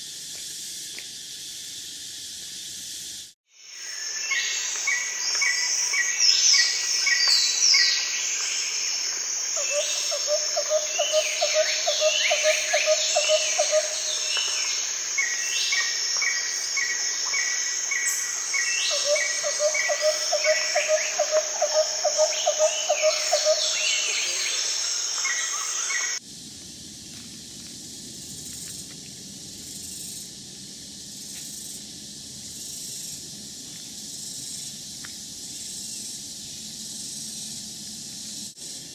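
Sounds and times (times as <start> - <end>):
high insect shrill: 0.0 - 26.2
even hiss with faint ticks: 4.0 - 24.2, 26.2 - 38.8
bird chirps and whistled calls: 17.9 - 26.2.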